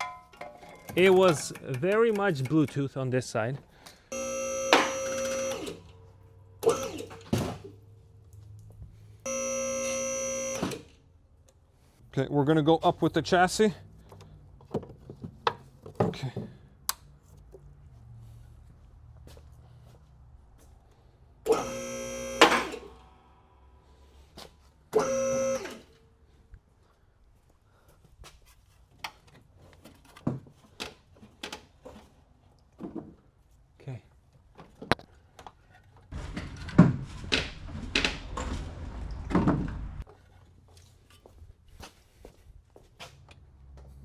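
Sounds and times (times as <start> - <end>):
hydraulic pump motor whining: 4.1 - 6.0, 6.6 - 7.7, 9.3 - 11.0, 21.4 - 23.2, 24.9 - 26.0.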